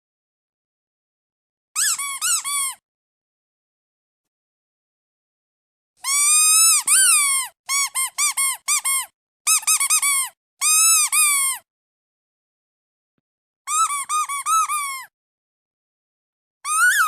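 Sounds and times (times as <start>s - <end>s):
duck squeeze toy squeaking: 1.8s - 2.8s, 6.0s - 11.6s, 13.7s - 15.1s, 16.7s - 17.0s.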